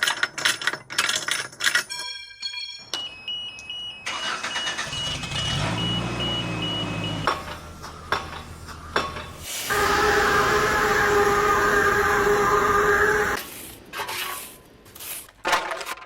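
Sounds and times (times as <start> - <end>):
machine beeping: 3.0 - 8.3
machine engine running: 4.8 - 13.4
steady machine hum: 7.6 - 13.4.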